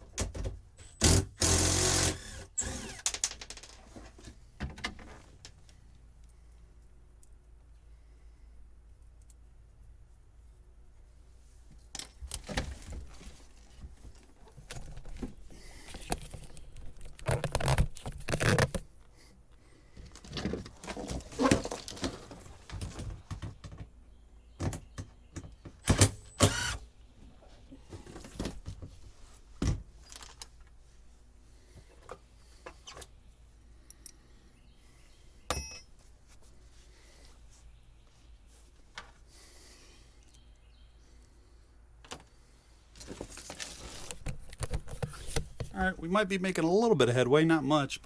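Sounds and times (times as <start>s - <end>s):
wiring rustling and clinking: 30.0s - 30.8s.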